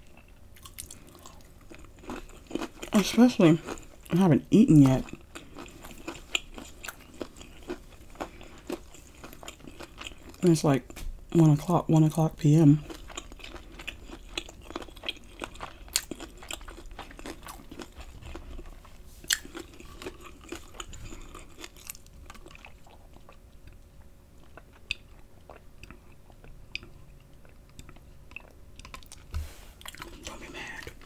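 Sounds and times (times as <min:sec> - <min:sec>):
chewing and crunching fried food: 0:00.0 - 0:31.0
soft mouth sounds: 0:29.2 - 0:31.0.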